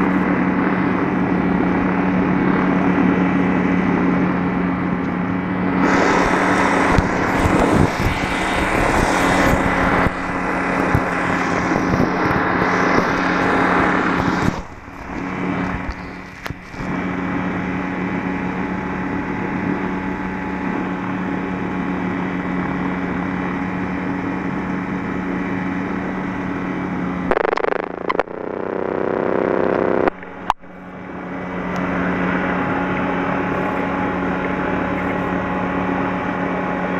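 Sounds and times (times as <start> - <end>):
rushing wind: 0.0 - 28.4
light aircraft engine and propeller: 0.0 - 36.9.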